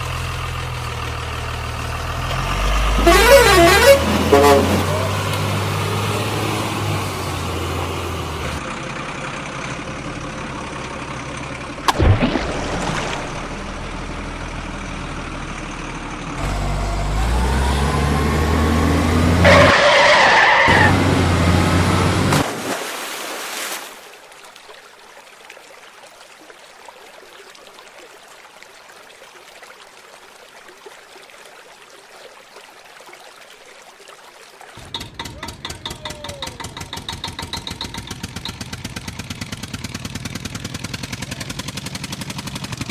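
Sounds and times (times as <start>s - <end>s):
heavy vehicle engine running: 0.0s - 12.0s, 13.1s - 19.7s, 20.6s - 22.4s, 34.8s - 42.9s
loud screech: 19.4s - 21.0s.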